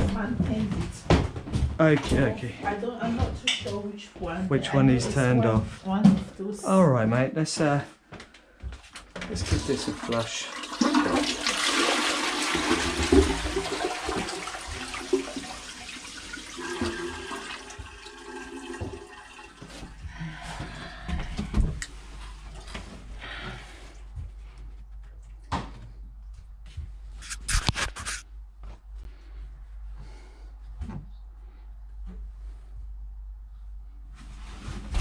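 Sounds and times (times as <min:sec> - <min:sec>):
toilet flushing: 0:09.3 - 0:20.8
water trickling: 0:09.4 - 0:20.0.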